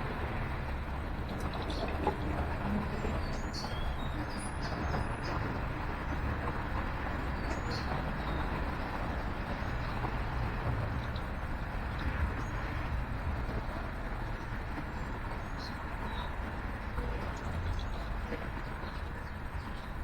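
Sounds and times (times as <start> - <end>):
road traffic rumble: 0.0 - 20.0
small birds chirping: 3.0 - 6.2, 7.2 - 10.0, 14.3 - 20.0.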